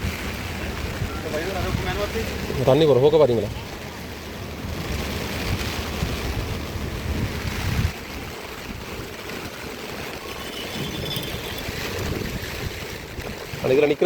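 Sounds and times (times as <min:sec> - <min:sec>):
river rushing: 0:00.0 - 0:14.0
wind buffeting microphone: 0:00.0 - 0:14.0.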